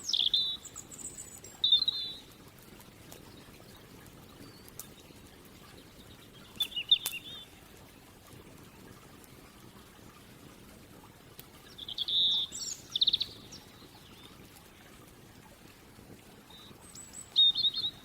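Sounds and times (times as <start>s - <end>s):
songbird singing: 0.0s - 2.4s, 3.2s - 8.1s, 11.6s - 14.4s, 16.5s - 18.0s.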